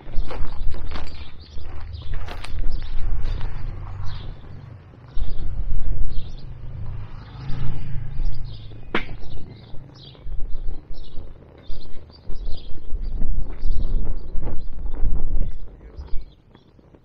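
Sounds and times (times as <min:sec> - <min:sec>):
small birds chirping: 0:00.0 - 0:17.0
wind buffeting microphone: 0:00.0 - 0:17.0
sharp crack: 0:06.3 - 0:09.9.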